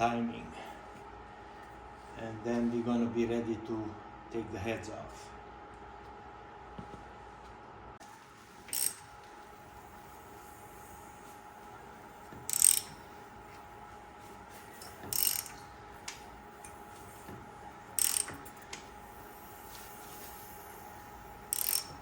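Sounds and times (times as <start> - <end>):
ratchet wrench clicking: 8.7 - 9.0, 12.5 - 13.0, 15.0 - 15.6, 18.0 - 18.6, 21.5 - 22.0.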